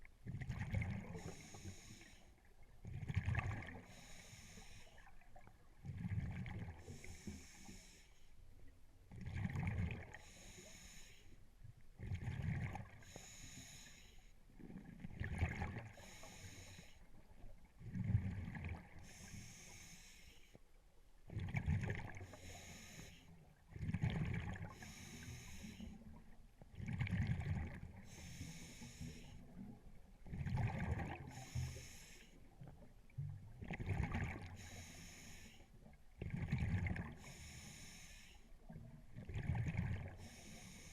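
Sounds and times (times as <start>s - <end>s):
regulator hiss on inhalation: 1.2s - 2.2s, 3.9s - 5.0s, 7.0s - 8.2s, 10.2s - 11.3s, 13.0s - 14.2s, 16.0s - 17.0s, 19.0s - 20.5s, 22.2s - 23.3s, 24.8s - 25.9s, 28.1s - 29.3s, 31.3s - 32.3s, 34.6s - 35.6s, 37.2s - 38.4s, 40.2s - 40.9s
exhaled bubbles burbling: 2.9s - 3.8s, 9.2s - 10.2s, 14.7s - 15.9s, 23.7s - 24.7s, 26.8s - 28.0s, 29.6s - 31.3s, 33.3s - 34.6s, 36.2s - 37.2s, 38.7s - 40.2s.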